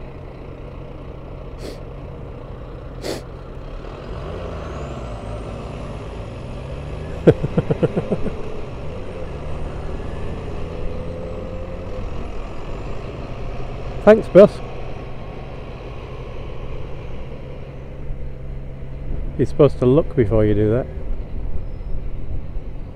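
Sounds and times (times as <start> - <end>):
motorcycle engine revving: 3.0 - 17.5.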